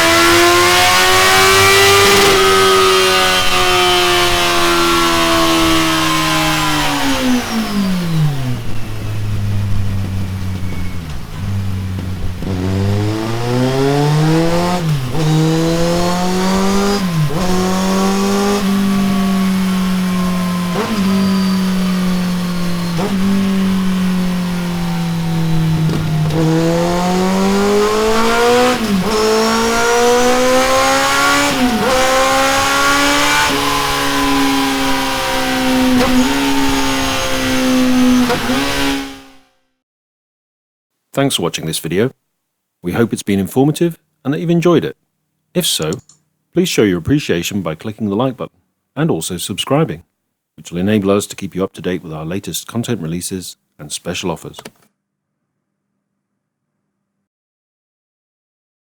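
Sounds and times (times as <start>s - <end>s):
motorcycle engine revving through gears: 0.0s - 39.6s.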